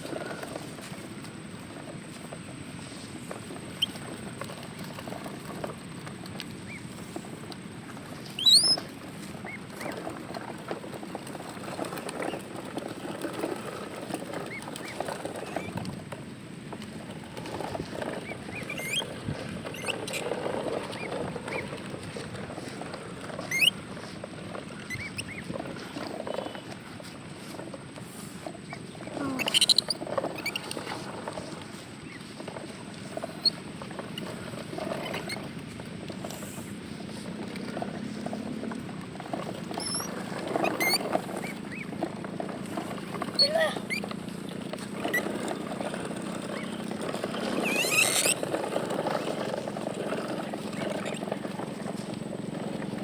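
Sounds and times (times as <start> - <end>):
steady rustling patter: 0.0 - 53.0
small animals squeaking: 8.2 - 10.3, 17.4 - 21.8, 23.4 - 24.1, 24.7 - 26.6, 29.0 - 31.1, 33.0 - 35.5, 39.6 - 44.3, 44.9 - 48.6, 49.4 - 51.4.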